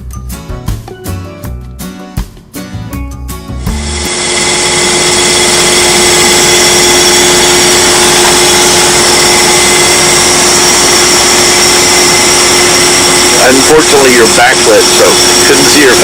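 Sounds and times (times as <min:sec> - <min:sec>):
boat engine droning: 0:03.7 - 0:16.0.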